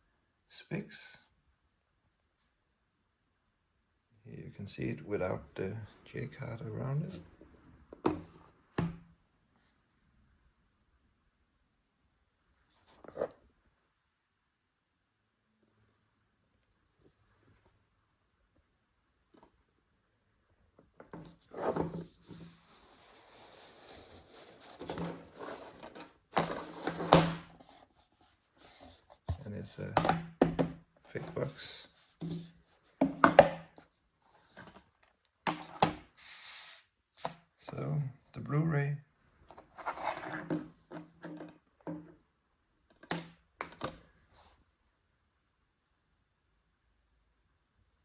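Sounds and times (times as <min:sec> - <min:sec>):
plastic case rustling and scraping: 0:12.7 - 0:13.4, 0:21.0 - 0:30.4, 0:31.1 - 0:36.4, 0:39.5 - 0:42.1.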